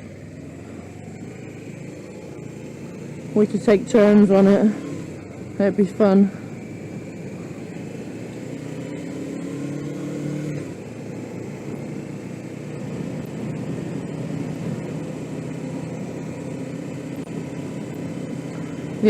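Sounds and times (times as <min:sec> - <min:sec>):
motorcycle engine running: 0:00.0 - 0:19.0
wind and road noise: 0:00.0 - 0:19.0.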